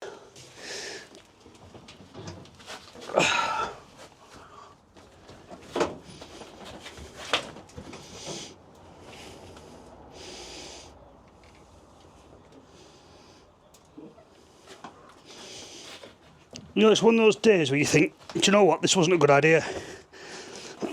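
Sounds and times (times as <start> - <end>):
man breathing hard: 0.0 - 1.2, 3.1 - 4.9, 8.0 - 11.2, 19.6 - 20.9.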